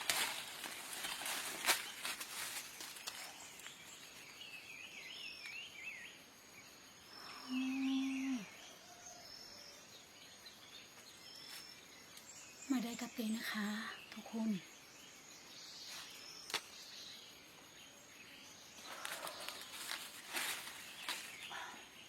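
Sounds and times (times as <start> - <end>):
high thin insect-like tones: 0.0 - 22.0
small birds chirping: 0.0 - 22.0
low humming voice: 7.4 - 8.6.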